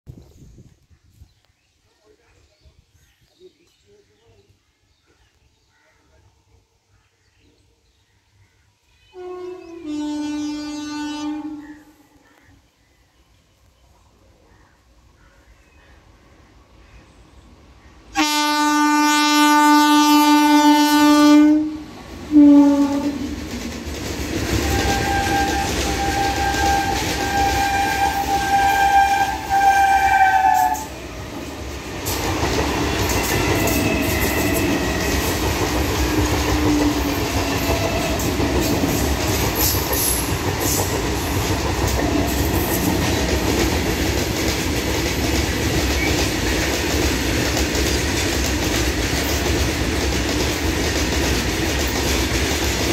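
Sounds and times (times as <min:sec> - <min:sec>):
deep train horn blasts: 0:09.1 - 0:12.0, 0:18.1 - 0:23.4, 0:24.5 - 0:31.0
high-pitched train horn: 0:09.1 - 0:12.0, 0:18.1 - 0:23.4, 0:24.6 - 0:31.0, 0:33.0 - 0:35.3, 0:36.6 - 0:38.4
train running noise: 0:17.6 - 0:52.9
wheels clacking over rail joints: 0:31.9 - 0:52.9.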